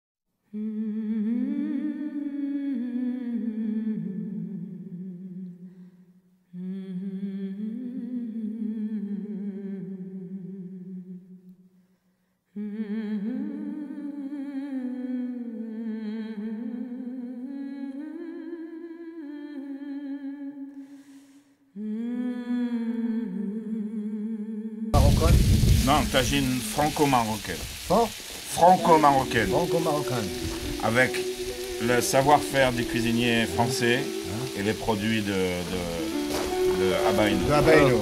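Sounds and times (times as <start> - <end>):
person humming: 21.8 - 38.0.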